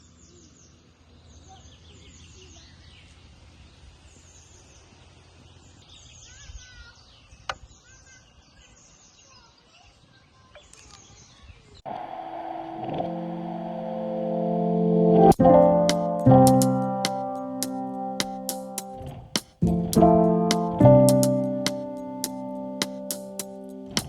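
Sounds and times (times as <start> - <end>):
small birds chirping: 0.0 - 11.8
music with sustained tones: 11.9 - 24.0.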